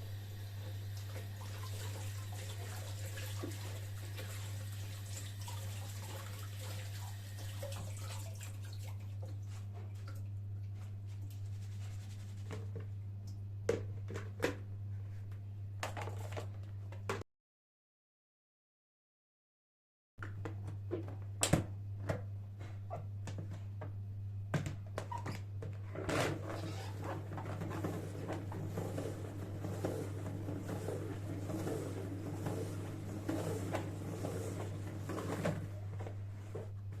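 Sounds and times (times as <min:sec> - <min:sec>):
water running from a tap: 0:00.0 - 0:09.4.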